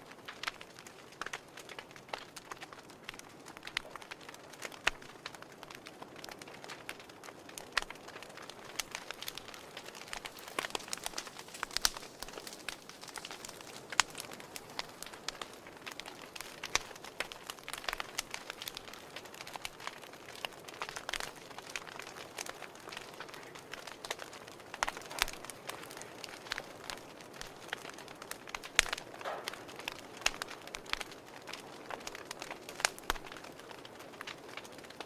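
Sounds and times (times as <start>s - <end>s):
fire crackling: 0.0s - 35.0s.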